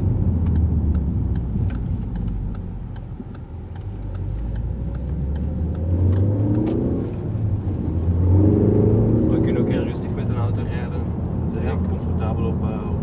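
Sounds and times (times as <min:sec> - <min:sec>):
car engine accelerating: 0:00.0 - 0:13.0
road rumble: 0:00.0 - 0:13.0.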